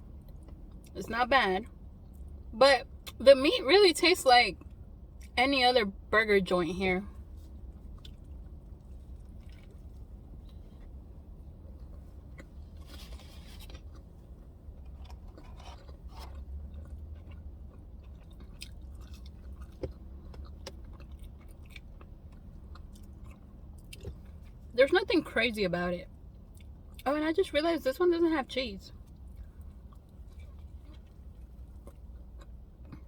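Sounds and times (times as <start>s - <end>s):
steady low hum: 0.0s - 33.0s
person chewing: 7.4s - 11.1s, 11.8s - 24.6s, 29.0s - 33.0s.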